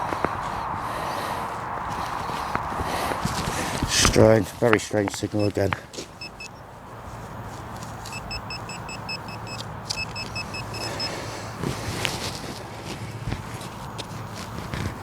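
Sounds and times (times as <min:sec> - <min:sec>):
metal detector pinpointer beeping: 0:04.9 - 0:12.1.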